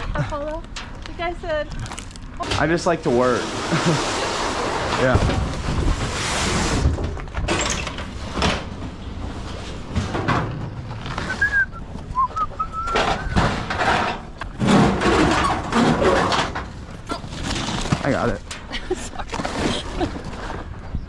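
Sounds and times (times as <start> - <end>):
short high squeaks: 3.8 - 5.1.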